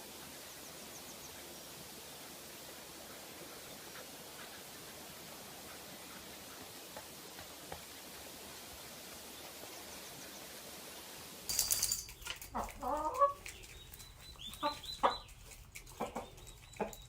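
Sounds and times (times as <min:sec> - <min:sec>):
chickens clucking: 0:12.2 - 0:17.0.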